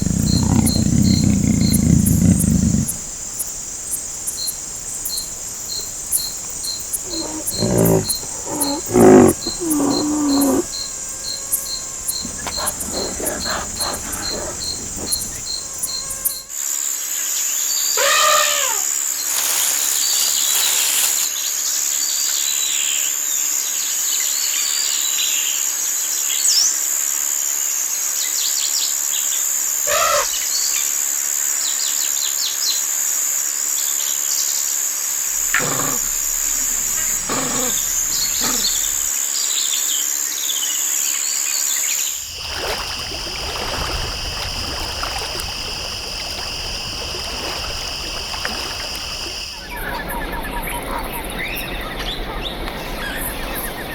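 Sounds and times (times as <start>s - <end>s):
bird calls: 0.0s - 3.5s, 4.3s - 16.4s, 29.9s - 30.5s, 35.4s - 39.1s
high-pitched insect chorus: 0.0s - 21.8s, 34.0s - 51.8s
continuous insect drone: 0.0s - 53.9s.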